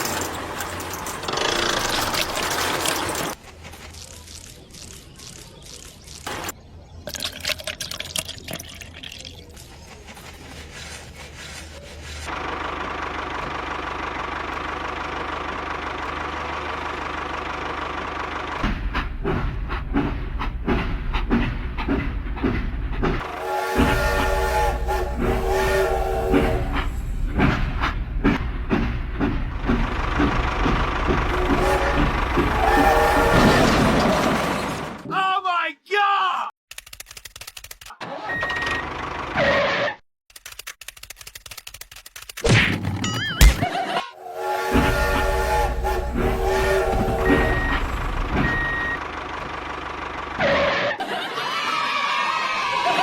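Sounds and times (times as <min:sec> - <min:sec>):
train rumbling on tracks: 0:09.5 - 0:35.0, 0:44.1 - 0:50.4
train horn: 0:23.2 - 0:27.2, 0:31.3 - 0:33.9, 0:44.2 - 0:48.6
reversing alarm beeping: 0:46.6 - 0:49.0.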